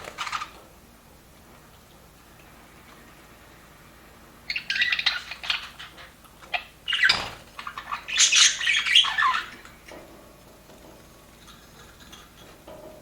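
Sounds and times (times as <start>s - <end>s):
budgerigars chattering and chirping: 4.5s - 9.6s.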